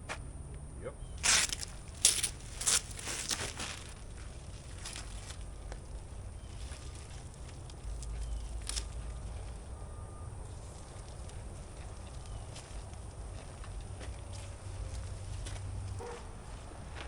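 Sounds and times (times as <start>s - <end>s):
material crinkling and tearing: 1.2s - 9.8s.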